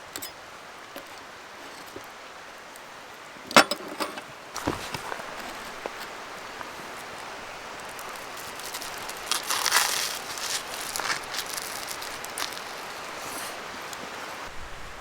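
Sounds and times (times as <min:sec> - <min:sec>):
campfire crackling hiss: 0:00.1 - 0:03.5, 0:04.4 - 0:15.0
clicks and rustles: 0:03.5 - 0:14.2.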